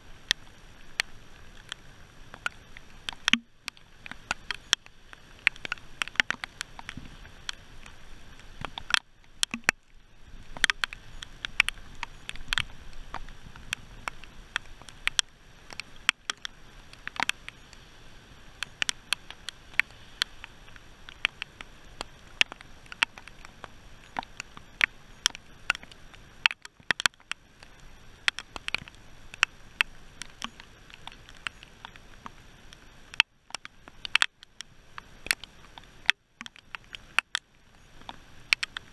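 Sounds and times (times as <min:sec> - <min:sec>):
rain on metal boat: 0:00.0 - 0:38.9.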